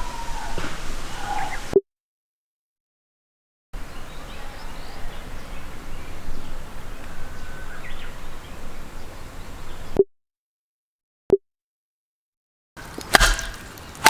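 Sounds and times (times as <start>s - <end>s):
faint bird chirps: 0.0s - 1.8s, 3.8s - 10.0s
short pitched pop: 12.9s - 14.0s.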